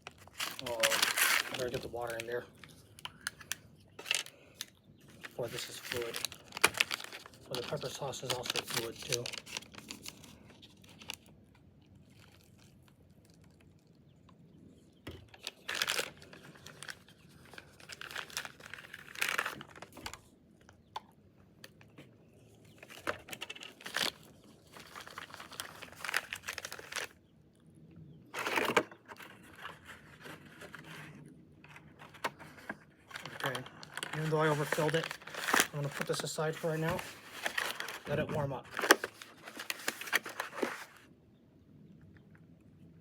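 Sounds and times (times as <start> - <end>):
plastic packaging crinkling: 0.0 - 14.0, 15.1 - 20.3, 22.6 - 27.2, 28.4 - 41.0.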